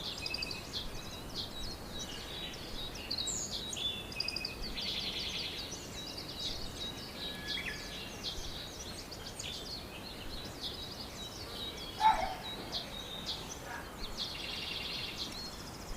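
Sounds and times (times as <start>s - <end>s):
small birds chirping: 0.0s - 15.9s
loud low bird call: 12.0s - 13.0s.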